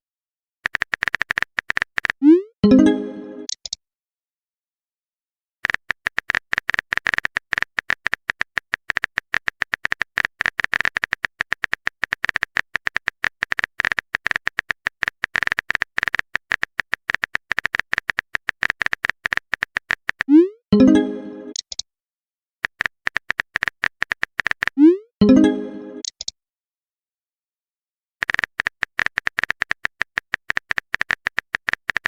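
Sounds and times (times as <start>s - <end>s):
phone keyboard typing clicks: 0.6s - 2.2s, 3.4s - 3.8s, 5.6s - 20.4s, 21.5s - 21.8s, 22.6s - 24.8s, 26.0s - 26.4s, 28.2s - 32.0s.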